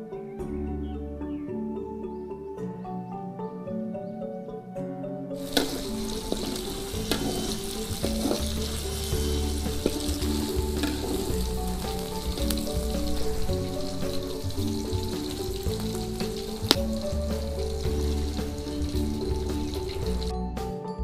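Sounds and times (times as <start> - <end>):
soft background music: 0.0 - 21.0
fish sizzling in hot oil: 5.4 - 20.3.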